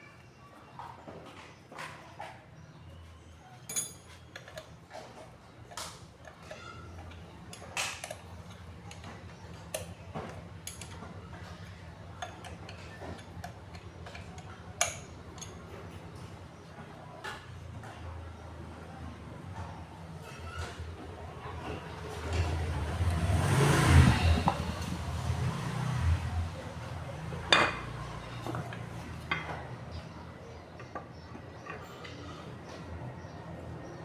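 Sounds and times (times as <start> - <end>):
metal clicks and taps of hand tools: 5.7 - 11.1, 12.2 - 15.6.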